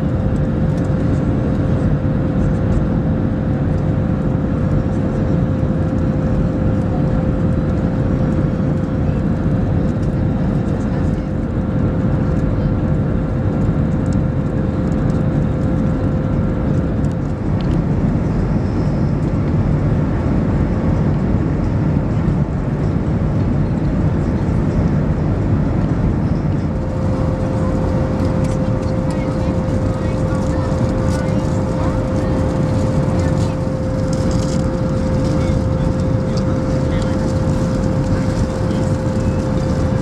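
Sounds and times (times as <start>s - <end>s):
airliner cabin rush: 23.5s - 40.0s
thin constant hum: 23.7s - 40.0s.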